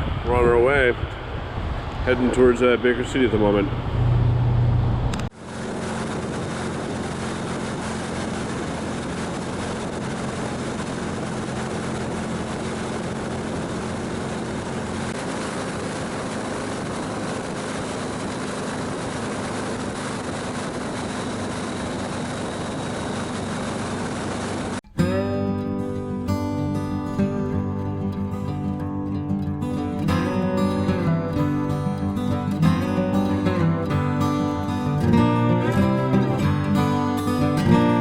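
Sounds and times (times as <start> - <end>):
wind noise on microphone: 0.0 - 23.8
loud sound cutting off: 0.0 - 29.0, 29.6 - 38.0
motorcycle engine running: 3.7 - 25.6.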